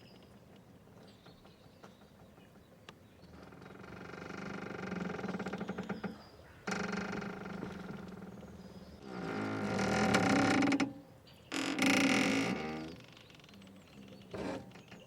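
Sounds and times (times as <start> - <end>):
boat rope squeaking: 9.0 - 10.9, 11.5 - 15.0.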